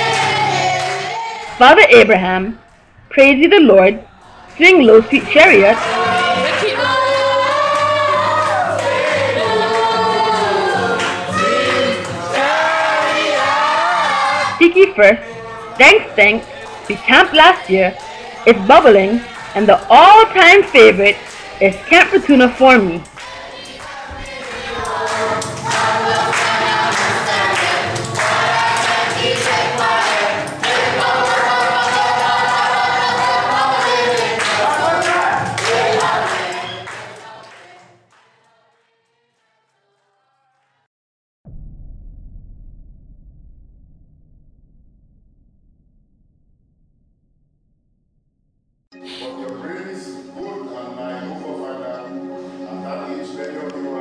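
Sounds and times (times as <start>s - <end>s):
group singing gospel song: 0.0s - 1.6s, 3.8s - 40.3s, 49.0s - 54.0s
hand clapping: 16.4s - 17.0s, 20.6s - 38.3s.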